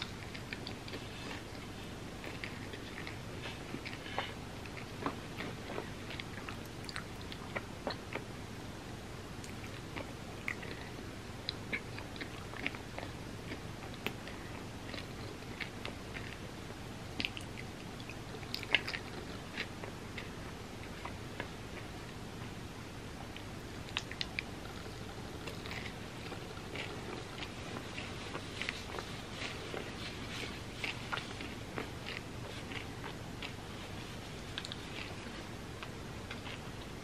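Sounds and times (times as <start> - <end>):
chewing candy bar: 9.4 - 16.4, 17.2 - 21.9, 23.9 - 33.7.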